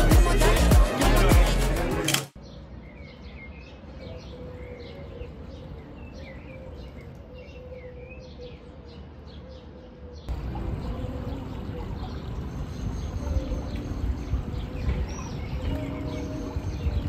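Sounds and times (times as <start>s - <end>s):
small birds chirping: 2.4s - 17.0s.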